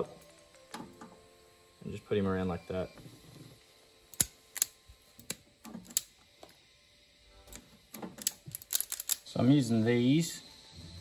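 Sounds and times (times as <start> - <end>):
wire stripper clicking: 4.1 - 6.1.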